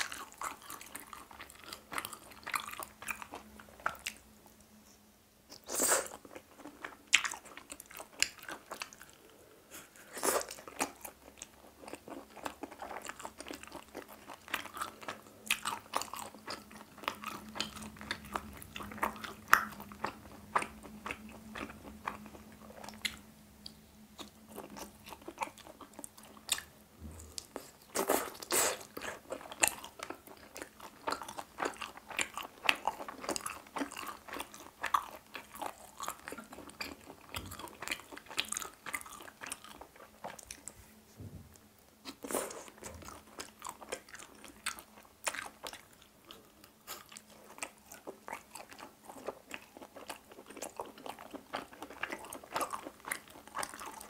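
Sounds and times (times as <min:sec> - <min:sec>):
person chewing and biting food: 0:09.8 - 0:40.7, 0:42.0 - 0:54.0.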